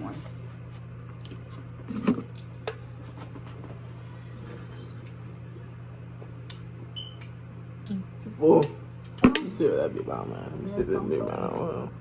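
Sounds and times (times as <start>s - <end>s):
faint eating sounds: 0.0s - 9.2s
low electrical hum: 0.0s - 12.0s.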